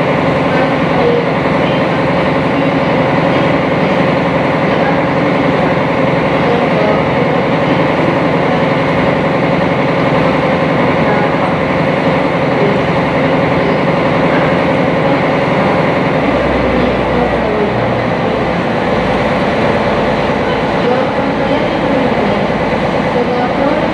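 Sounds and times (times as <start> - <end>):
boat engine drone: 0.0 - 23.9
deeper rumble: 15.6 - 23.9.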